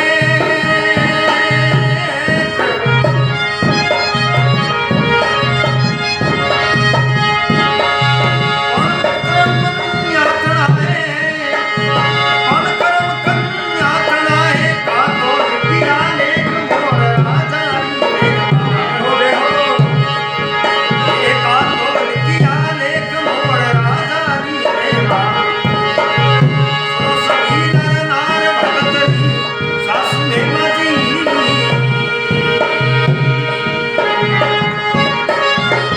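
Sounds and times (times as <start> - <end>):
sustained held notes: 0.0 - 11.4
tabla rhythm: 0.0 - 35.9
gliding melody: 1.1 - 11.2.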